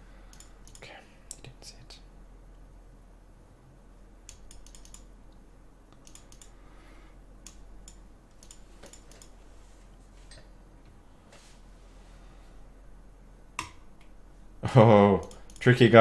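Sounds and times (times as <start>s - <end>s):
computer mouse clicks: 0.3s - 1.5s, 4.2s - 5.1s, 5.9s - 6.6s, 7.4s - 9.4s, 15.2s - 15.7s.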